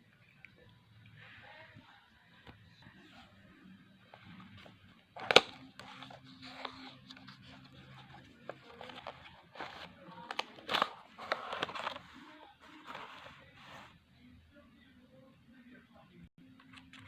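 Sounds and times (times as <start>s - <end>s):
packaging clicks: 5.2s - 12.1s
plastic and cardboard crinkling: 5.2s - 13.9s.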